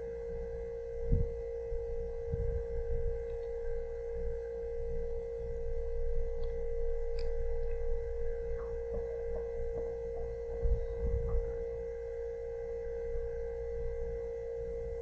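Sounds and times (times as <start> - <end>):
steady pure tone: 0.0 - 15.0
low rumble: 2.1 - 11.9.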